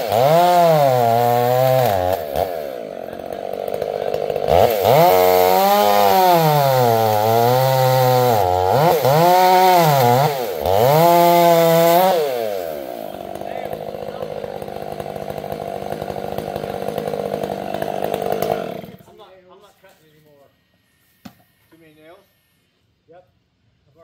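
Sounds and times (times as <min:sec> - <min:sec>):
chainsaw engine revving: 0:00.0 - 0:19.2.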